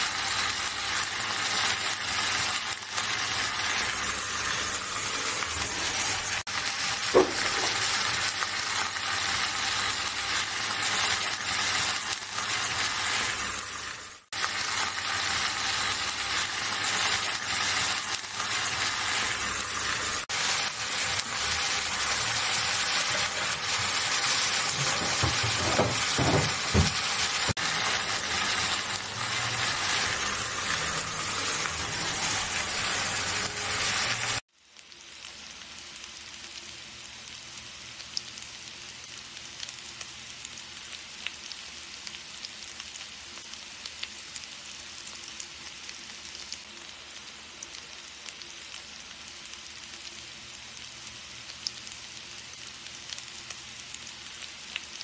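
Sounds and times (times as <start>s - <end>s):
oil popping and crackling: 0.0s - 37.4s
food sizzling in hot oil: 0.0s - 55.0s.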